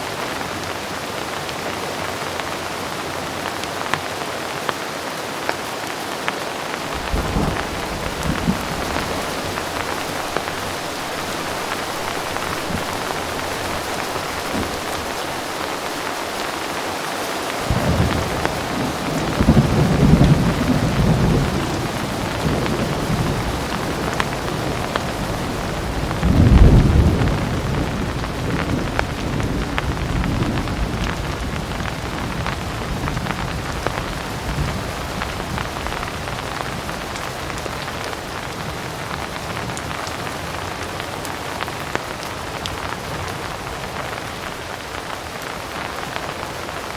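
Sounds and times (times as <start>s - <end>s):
heavy rain: 0.0s - 46.9s
thunder rumbling: 6.8s - 17.0s, 17.6s - 37.8s.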